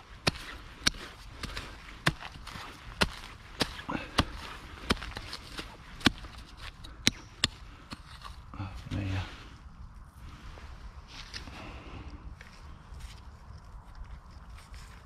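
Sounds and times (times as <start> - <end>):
digging tool chopping into ground: 0.0 - 8.4.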